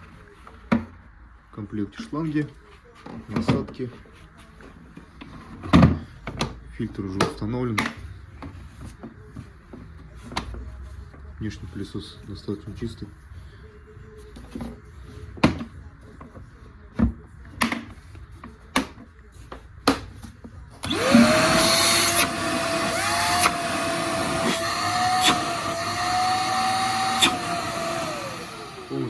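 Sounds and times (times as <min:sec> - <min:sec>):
vacuum cleaner motor whine: 0:20.8 - 0:29.0.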